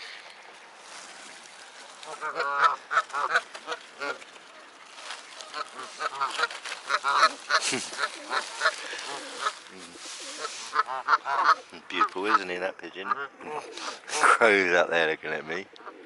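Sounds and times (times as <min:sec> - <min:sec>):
waterfowl flock calling: 0:01.8 - 0:14.6.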